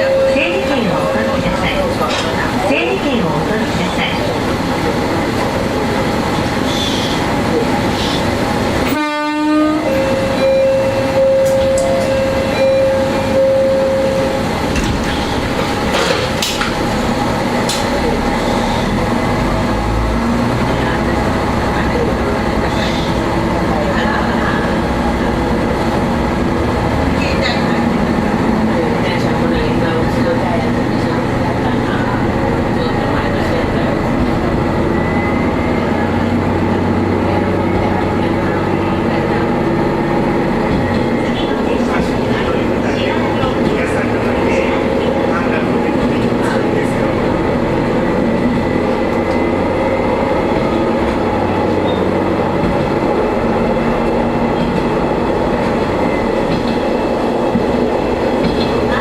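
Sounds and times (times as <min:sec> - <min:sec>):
diesel railcar engine: 0:00.0 - 0:59.0
train horn: 0:08.8 - 0:14.1.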